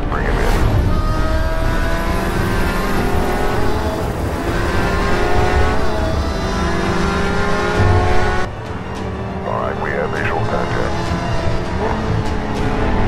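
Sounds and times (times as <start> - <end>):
car engine accelerating hard: 0.1 - 13.0.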